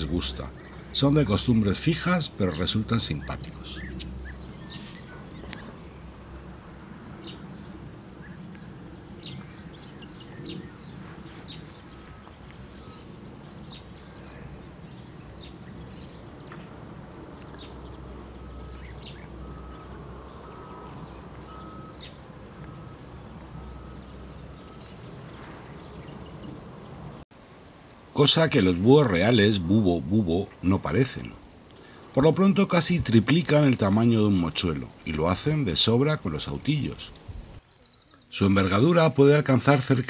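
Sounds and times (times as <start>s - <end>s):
steady low rumble: 0.0s - 27.2s
high bird chirps: 2.5s - 6.0s, 6.9s - 16.7s, 17.4s - 26.7s.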